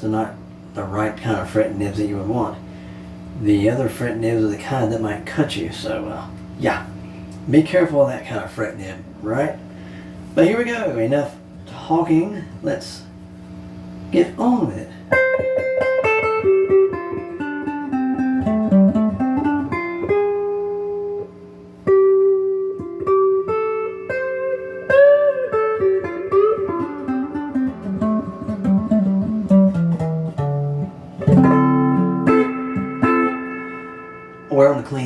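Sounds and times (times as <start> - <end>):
clean electric guitar single notes: 22.0 - 34.9.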